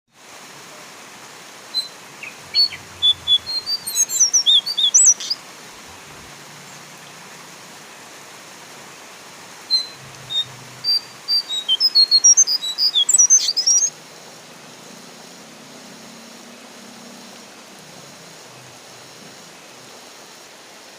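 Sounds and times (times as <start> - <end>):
rain hiss: 0.1 - 20.9
bird whistling high notes: 1.8 - 5.4, 9.7 - 13.9.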